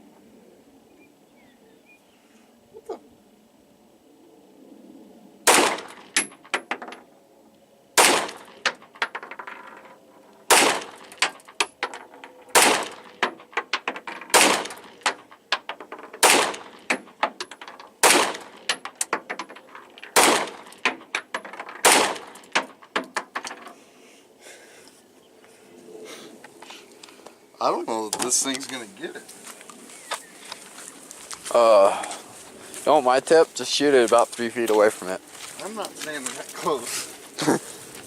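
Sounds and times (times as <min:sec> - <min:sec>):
pistol shots: 0:05.4 - 0:06.3, 0:08.0 - 0:08.8, 0:10.5 - 0:11.3, 0:12.5 - 0:13.3, 0:14.3 - 0:15.2, 0:16.2 - 0:17.0, 0:18.0 - 0:18.8, 0:20.1 - 0:20.9, 0:21.8 - 0:22.7.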